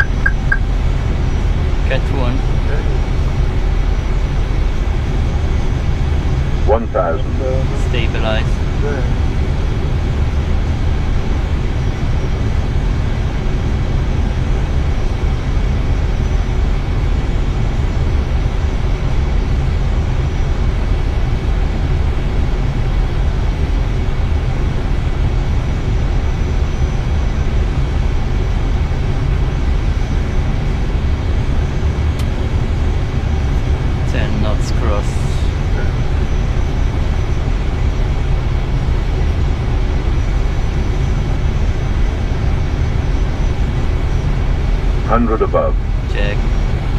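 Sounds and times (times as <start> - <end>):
faint high steady tone: 0.0 - 0.7
airflow and engine rumble: 0.0 - 46.9.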